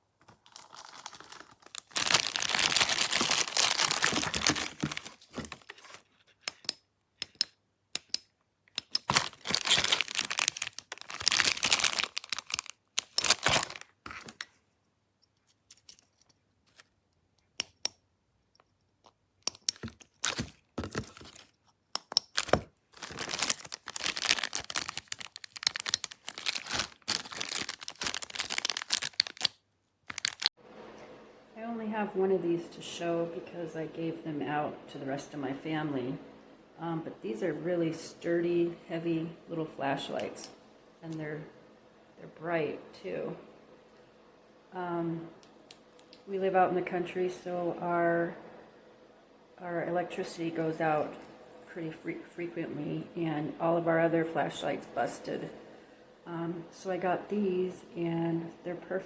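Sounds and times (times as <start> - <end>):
material tearing and crinkling: 0.0 - 6.4, 8.8 - 14.5, 19.8 - 30.6.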